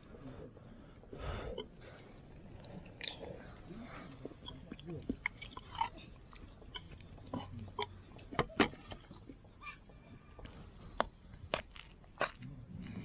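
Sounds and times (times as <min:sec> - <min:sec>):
person eating and chewing: 0:01.2 - 0:09.4, 0:11.0 - 0:13.0.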